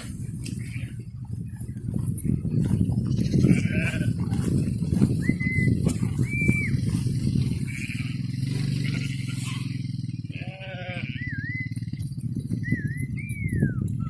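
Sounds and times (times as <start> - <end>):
low rumble: 0.0 - 14.0
sheep bleating: 0.4 - 1.2, 3.1 - 4.5, 6.9 - 11.4
shepherd's whistles: 5.0 - 7.4, 11.0 - 14.0.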